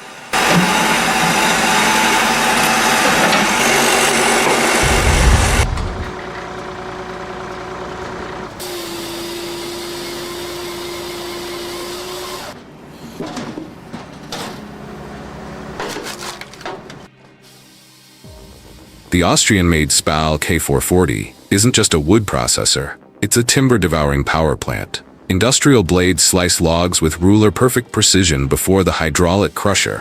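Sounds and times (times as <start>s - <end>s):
heavy machinery engines running: 0.4s - 11.2s
deep thump: 4.8s - 6.1s
uneven bursts of noise: 4.8s - 6.2s.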